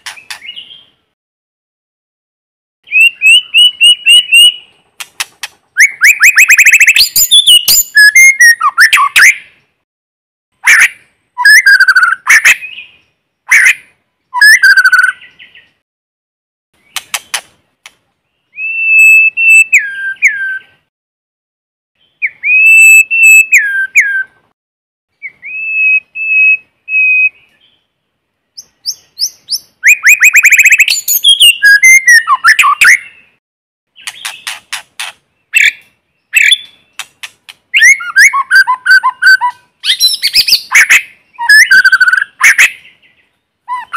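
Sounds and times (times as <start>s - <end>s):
bird singing: 0.0s - 1.0s, 2.8s - 4.9s, 5.7s - 9.8s, 10.7s - 15.8s, 18.2s - 20.8s, 22.0s - 24.4s, 25.1s - 43.9s
bird whistling: 2.9s - 4.7s, 5.8s - 9.4s, 11.4s - 13.0s, 14.3s - 15.6s, 18.5s - 20.7s, 22.2s - 24.3s, 25.2s - 27.7s, 28.6s - 33.2s, 34.0s - 37.1s, 37.7s - 42.9s.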